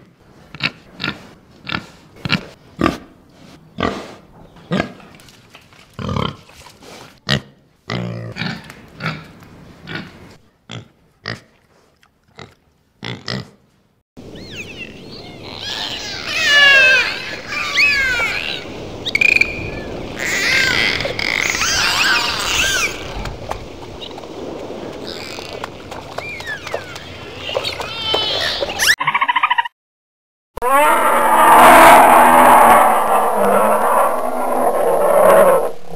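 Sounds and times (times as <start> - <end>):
steady crackle: 18.2 - 27.6, 31.1 - 35.9
dolphin whistling and clicking: 25.2 - 29.7.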